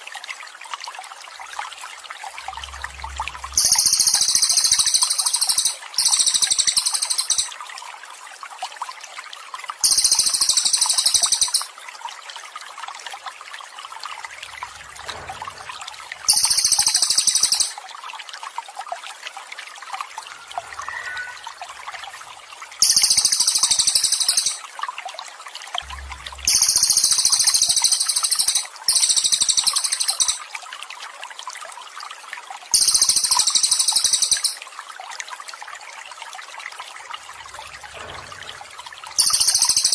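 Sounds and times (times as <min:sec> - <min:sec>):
water trickling: 0:00.0 - 0:39.9
bird singing high trills: 0:02.5 - 0:07.5, 0:09.8 - 0:11.7, 0:16.3 - 0:17.8, 0:20.2 - 0:24.6, 0:25.8 - 0:30.4, 0:32.8 - 0:34.6, 0:39.1 - 0:39.9.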